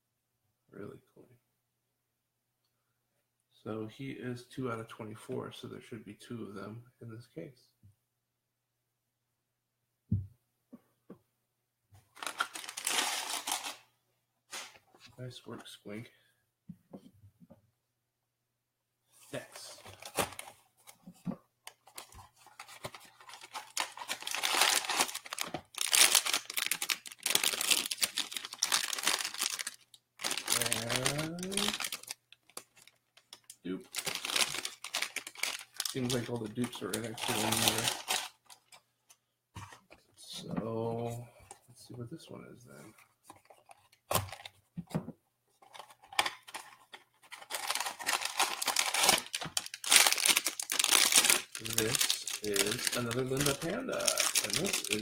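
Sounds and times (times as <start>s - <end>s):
plastic bag crinkling and tearing: 12.1s - 13.8s, 21.7s - 38.8s, 45.7s - 55.0s.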